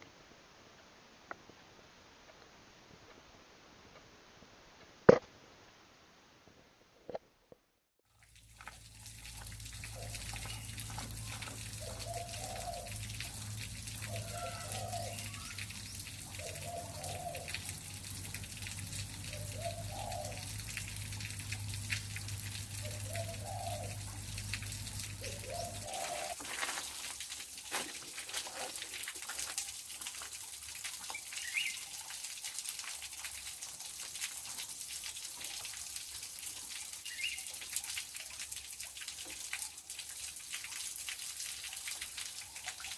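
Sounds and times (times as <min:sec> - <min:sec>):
bird short low calls: 0:14.0 - 0:17.5.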